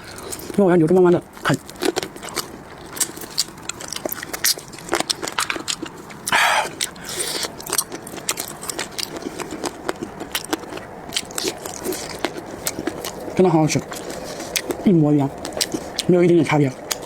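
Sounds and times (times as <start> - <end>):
person chewing with crunches: 0.0 - 17.0
loud sucking noise: 6.3 - 7.6.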